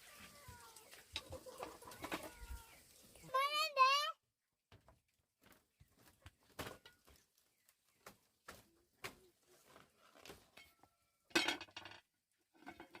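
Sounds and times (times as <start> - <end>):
small objects clinking and knocking: 10.5 - 13.0.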